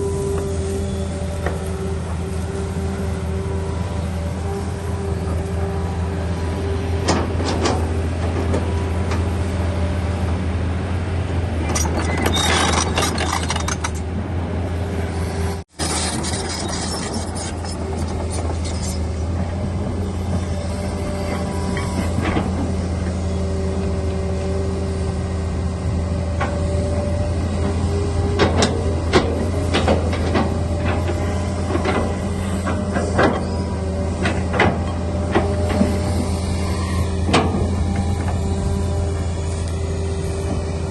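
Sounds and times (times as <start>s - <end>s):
excavator diesel engine running: 0.0s - 40.9s
metallic squeaks and clanks: 11.6s - 14.1s, 15.8s - 19.5s, 20.2s - 23.4s, 27.7s - 40.9s.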